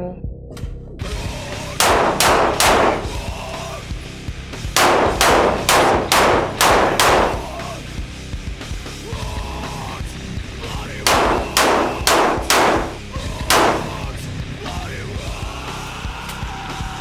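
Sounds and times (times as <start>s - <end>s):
gunshots: 1.8s - 3.4s, 4.8s - 7.8s, 11.1s - 14.2s.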